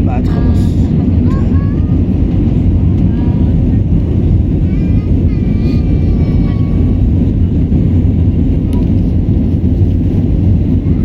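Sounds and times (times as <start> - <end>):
faint voice: 0.0 - 2.1
jet engine cabin rumble: 0.0 - 11.0.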